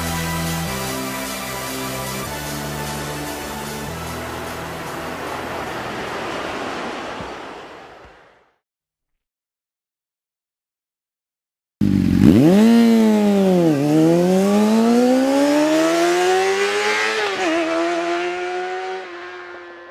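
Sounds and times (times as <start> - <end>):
motorcycle engine accelerating: 11.8 - 19.9.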